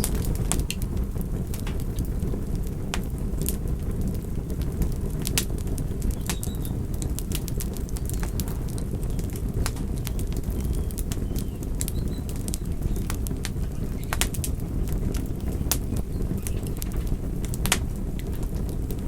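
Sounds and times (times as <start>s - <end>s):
campfire crackling and popping: 0.0s - 19.0s
low rumble of flames: 0.0s - 19.0s.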